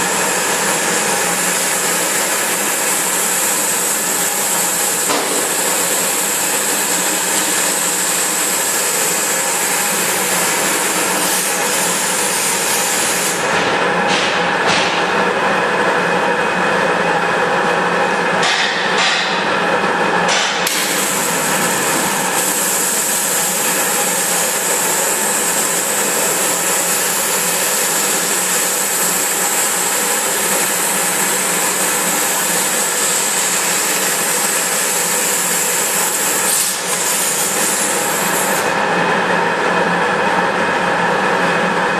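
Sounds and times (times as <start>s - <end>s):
waterjet cutter hissing: 0.0s - 14.9s, 20.3s - 39.0s.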